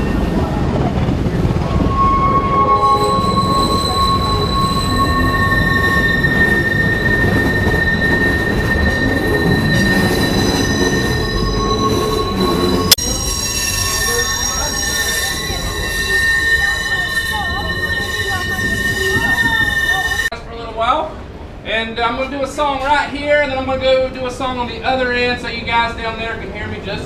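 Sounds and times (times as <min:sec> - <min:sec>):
rumble of rolling train cars: 0:00.0 - 0:20.3
train wheels squealing on rails: 0:00.0 - 0:20.3.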